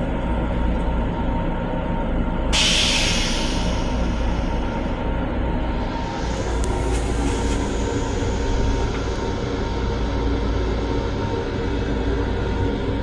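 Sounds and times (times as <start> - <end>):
railcar running rumble: 0.0 - 13.0
short hiss: 2.6 - 4.8.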